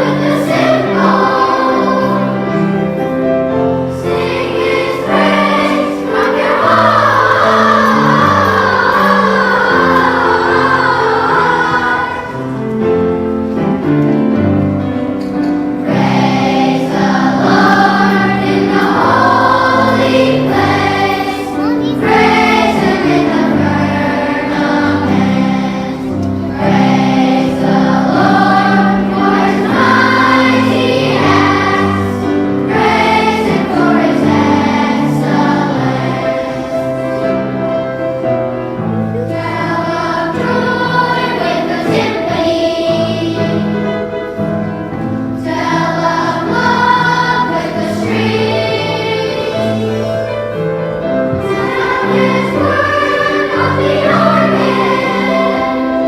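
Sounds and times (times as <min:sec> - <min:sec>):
children's choir singing: 0:00.0 - 0:56.0
instrumental accompaniment: 0:00.0 - 0:56.0.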